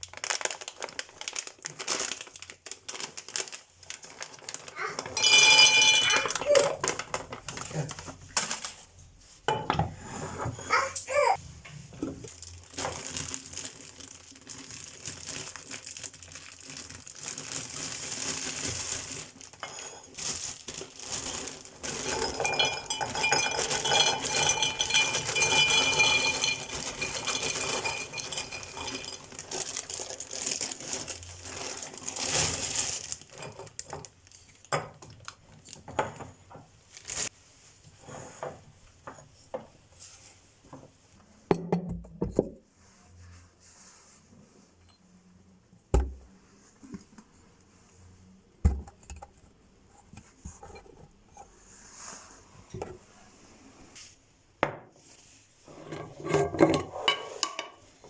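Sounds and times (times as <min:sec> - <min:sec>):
plastic packaging crinkling: 0:00.0 - 0:09.0, 0:12.2 - 0:35.9, 0:36.9 - 0:37.3
items clinking and knocking: 0:04.2 - 0:08.8, 0:09.5 - 0:37.2, 0:55.7 - 0:58.0.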